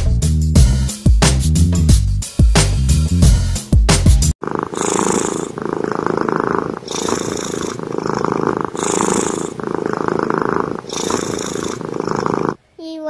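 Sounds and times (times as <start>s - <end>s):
cat purring loudly: 4.4s - 12.6s.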